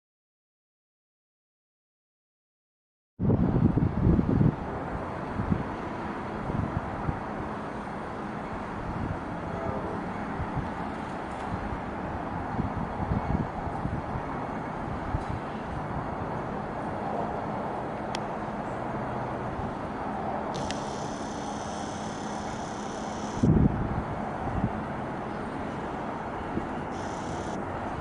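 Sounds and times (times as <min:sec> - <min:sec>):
wind buffeting microphone: 0:03.2 - 0:07.5, 0:08.6 - 0:17.9, 0:23.3 - 0:28.0
thin high whine: 0:20.5 - 0:23.5, 0:26.9 - 0:27.6.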